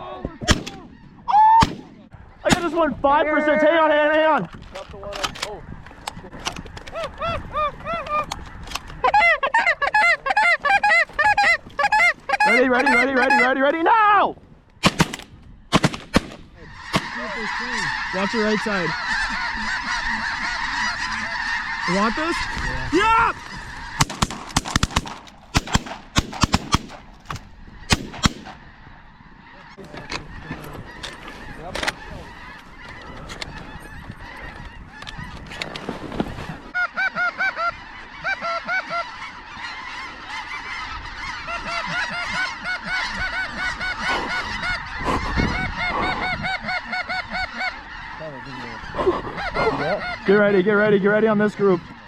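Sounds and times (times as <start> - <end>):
flock of geese calling: 0.0 - 14.2, 14.8 - 52.0
shotgun shots: 14.8 - 17.1, 24.0 - 27.1, 27.9 - 28.6.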